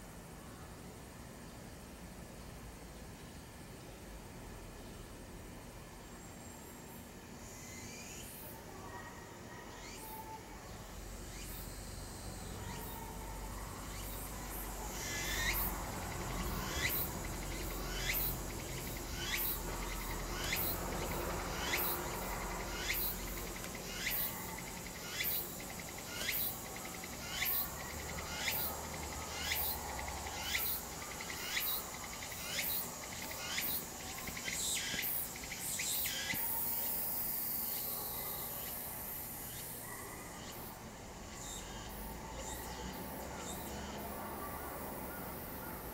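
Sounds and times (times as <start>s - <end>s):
cicada calling: 9.8s - 45.9s.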